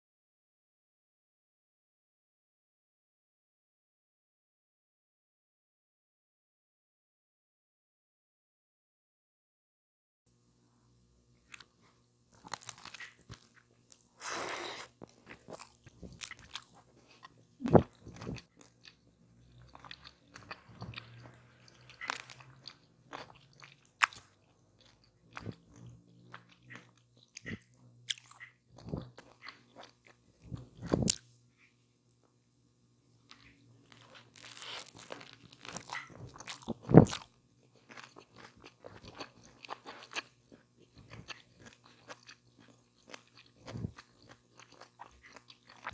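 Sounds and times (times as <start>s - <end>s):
crunchy chewing: 11.4s - 32.4s, 33.3s - 45.9s.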